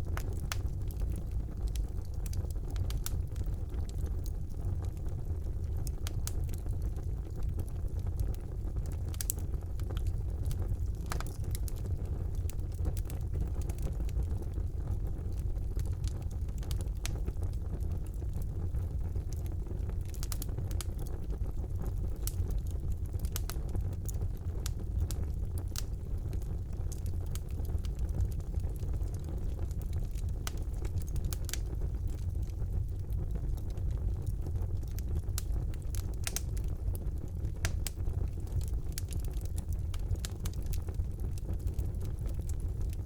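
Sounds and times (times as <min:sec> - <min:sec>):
fire crackling and popping: 0:00.0 - 0:43.0
fire flames rushing: 0:23.0 - 0:43.0.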